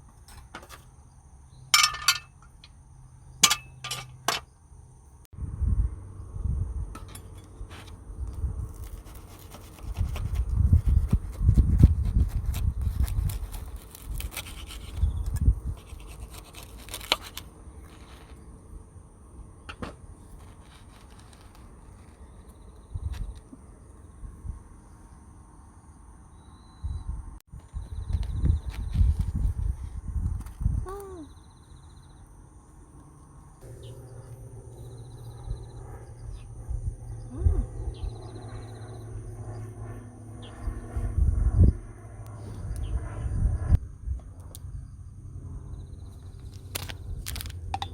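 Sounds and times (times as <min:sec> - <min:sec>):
wind buffeting microphone: 0:05.4 - 0:16.2, 0:26.8 - 0:32.0, 0:35.3 - 0:44.9
scratching and rubbing: 0:08.7 - 0:18.4, 0:20.2 - 0:22.5.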